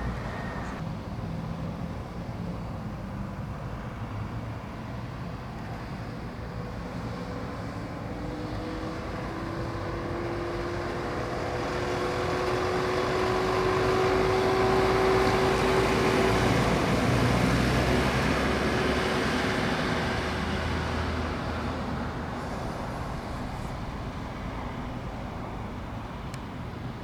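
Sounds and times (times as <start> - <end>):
vehicle passing by: 6.8 - 27.0.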